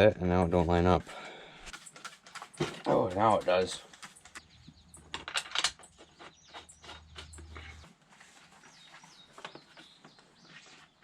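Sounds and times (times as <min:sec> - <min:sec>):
hand tools clicking and tapping: 0:01.6 - 0:07.9
bird chirps: 0:03.5 - 0:11.0.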